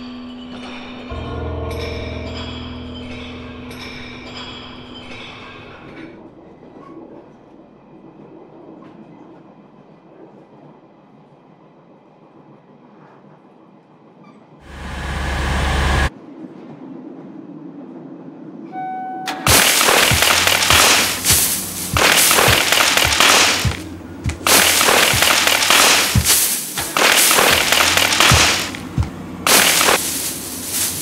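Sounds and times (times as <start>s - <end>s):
burst of noise: 19.4s - 31.0s
dense crackling noise: 19.5s - 31.0s
low thuds: 19.5s - 31.0s.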